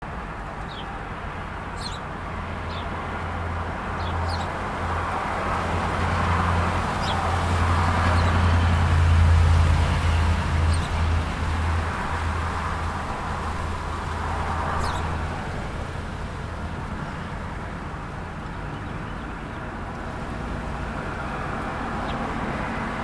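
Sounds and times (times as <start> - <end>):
road traffic rumble: 0.0 - 23.0
small birds chirping: 1.7 - 2.1, 4.0 - 4.6, 6.1 - 9.0, 9.6 - 17.3
vehicle passing: 2.5 - 18.4, 19.8 - 23.0.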